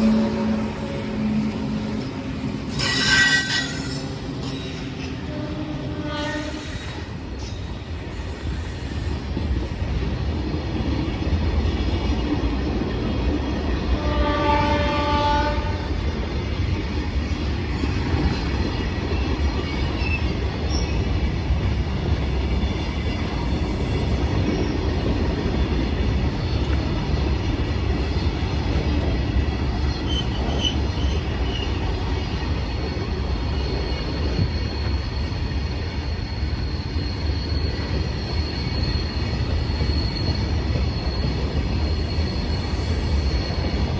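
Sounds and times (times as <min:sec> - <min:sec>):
train horn: 0:00.0 - 0:04.1, 0:05.1 - 0:07.1, 0:13.9 - 0:16.0
train rumbling: 0:00.0 - 0:43.9.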